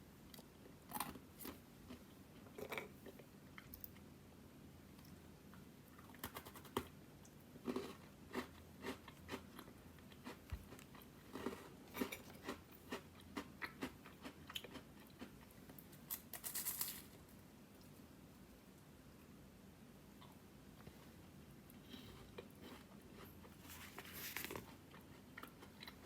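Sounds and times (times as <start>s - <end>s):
snack crunching while chewed: 7.7s - 15.4s.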